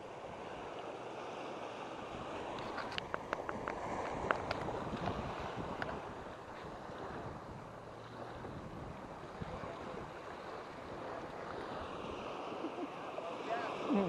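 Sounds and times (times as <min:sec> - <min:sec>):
waves lapping on stony shore: 0:00.0 - 0:14.0
wind buffeting microphone: 0:02.1 - 0:13.0.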